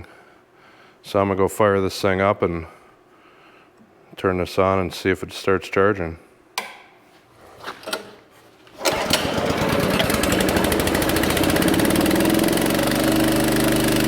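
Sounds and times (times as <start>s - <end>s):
pressure washer engine running: 8.8s - 14.0s.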